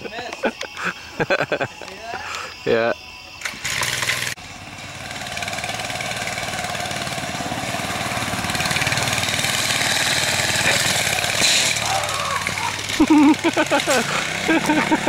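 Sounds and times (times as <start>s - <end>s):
small bike engine running: 3.4s - 15.0s.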